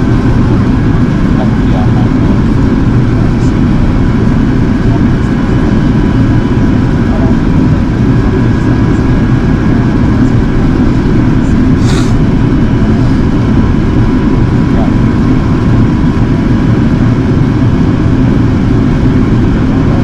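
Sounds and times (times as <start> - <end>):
airplane cabin drone: 0.0 - 20.0
faint steady whines: 0.0 - 20.0
brief high hiss: 11.8 - 12.2.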